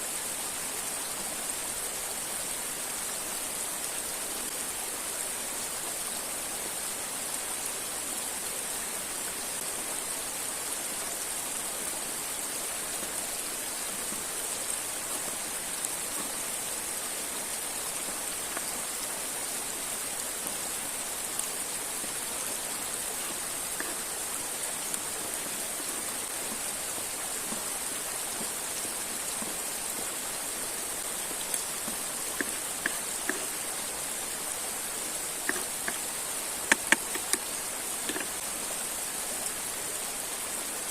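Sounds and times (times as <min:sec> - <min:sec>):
waterfall rushing: 0:00.0 - 0:40.9
sharp clicks: 0:36.7 - 0:37.5.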